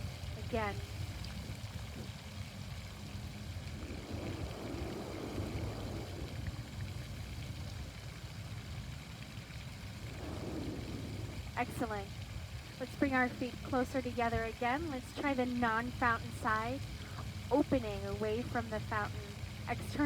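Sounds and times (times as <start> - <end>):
low rumble: 0.0 - 14.2
fountain water splashing: 0.0 - 20.0.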